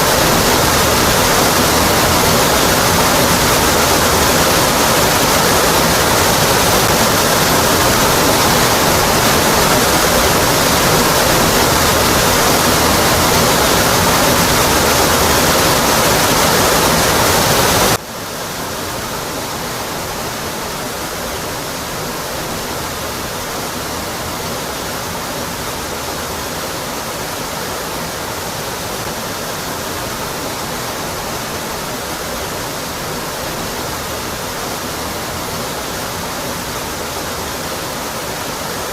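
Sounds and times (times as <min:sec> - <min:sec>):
waterfall pouring: 0:00.0 - 0:18.0.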